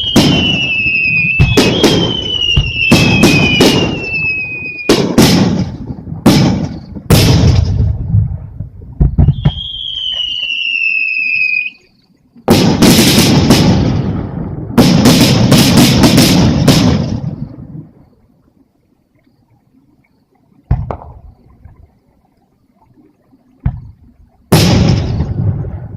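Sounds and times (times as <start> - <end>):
high firework whistle: 0.0 - 7.5, 9.1 - 14.1
firework shells bursting: 0.0 - 7.9
fireworks booming and crackling: 0.0 - 11.7, 12.4 - 17.9, 20.7 - 21.4, 23.6 - 25.9.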